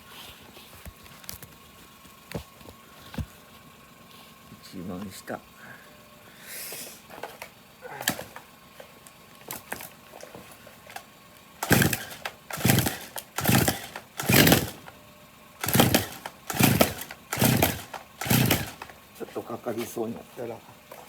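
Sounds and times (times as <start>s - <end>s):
chainsaw starter rope yanks: 7.0s - 15.0s, 15.6s - 20.1s
chainsaw engine turning over: 7.0s - 21.0s.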